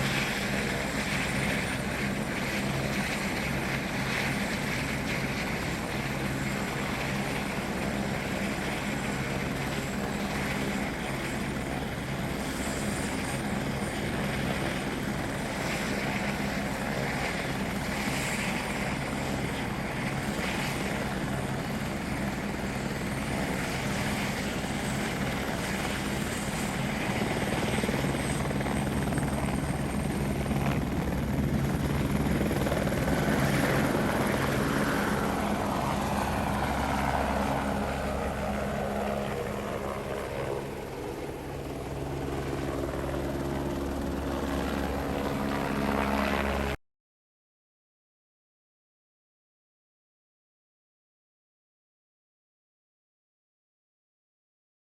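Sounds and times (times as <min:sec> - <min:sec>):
helicopter rotor beating: 0:00.0 - 0:46.7
helicopter engine whine: 0:00.0 - 0:46.8.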